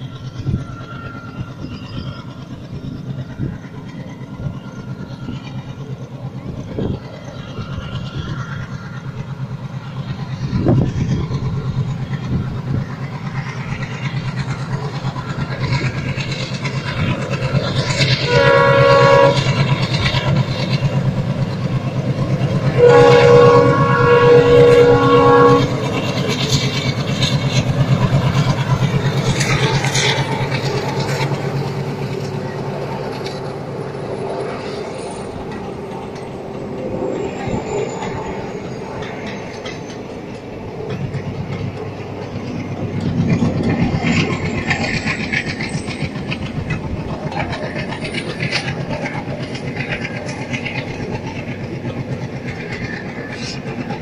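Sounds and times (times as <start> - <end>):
train wheels rumbling and clattering: 0.0 - 54.0
multi-note train horn: 18.0 - 20.2, 22.4 - 26.1.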